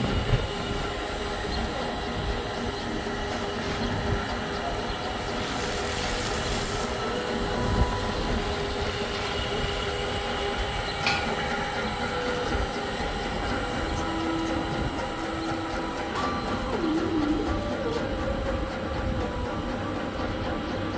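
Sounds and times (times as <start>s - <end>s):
faint whining tones: 0.0s - 20.9s
washing machine rumbling: 0.0s - 20.9s.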